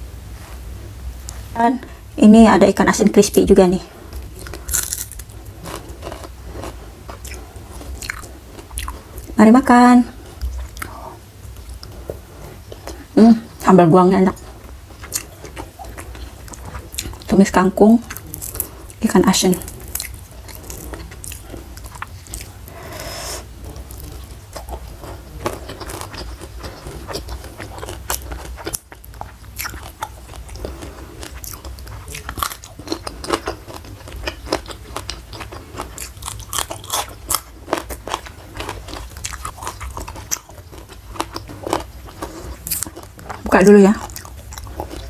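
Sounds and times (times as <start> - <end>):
chewing with crisp crunches: 4.1 - 9.4, 10.2 - 13.6, 14.3 - 45.0.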